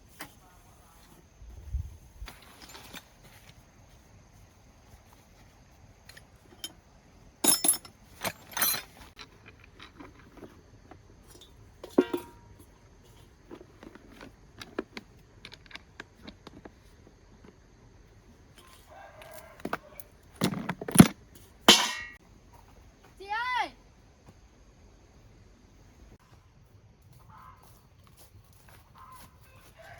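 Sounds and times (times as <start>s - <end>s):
metal tools clinking: 2.3s - 3.1s, 6.0s - 10.6s, 11.2s - 13.2s, 20.4s - 22.2s.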